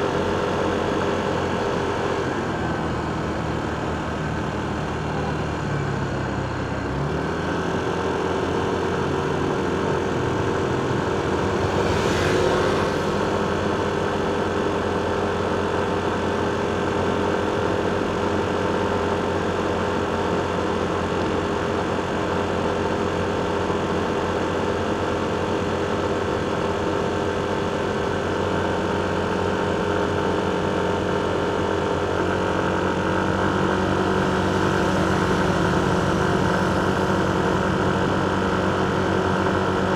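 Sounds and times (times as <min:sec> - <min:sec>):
traffic engines humming: 0:00.0 - 0:39.9
motorcycle engine running: 0:07.7 - 0:16.7, 0:30.1 - 0:39.9.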